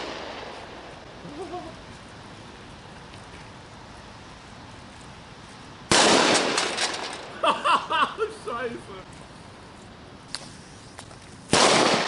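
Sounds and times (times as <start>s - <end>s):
firecracker crackling: 0.0s - 2.9s, 5.8s - 7.6s, 10.2s - 12.0s
firecracker bang: 5.9s - 7.3s, 11.5s - 12.0s.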